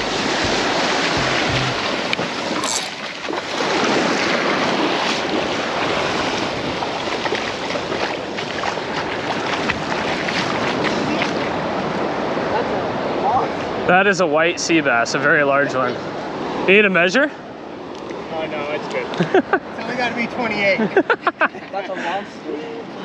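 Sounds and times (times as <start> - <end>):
ocean surf washing onto beach: 0.0 - 17.0.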